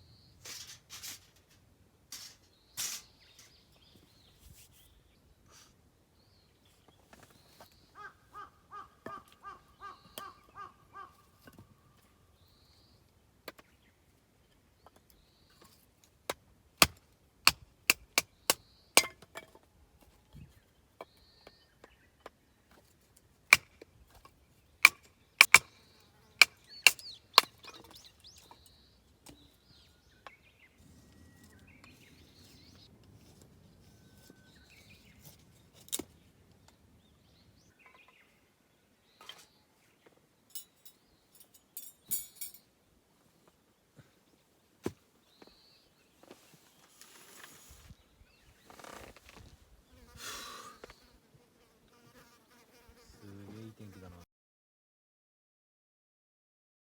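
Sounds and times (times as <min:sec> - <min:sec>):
small birds chirping: 0:02.2 - 0:15.9, 0:24.0 - 0:42.7, 0:45.2 - 0:51.2
bird pitched calls: 0:08.0 - 0:11.1
wood being chopped: 0:16.3 - 0:19.2, 0:23.5 - 0:23.8, 0:24.8 - 0:25.7.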